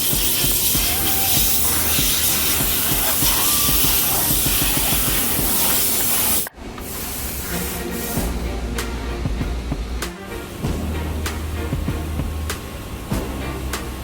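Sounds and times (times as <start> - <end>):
music: 0.0 - 6.1, 7.3 - 14.0
high-pressure water spraying: 0.0 - 8.3.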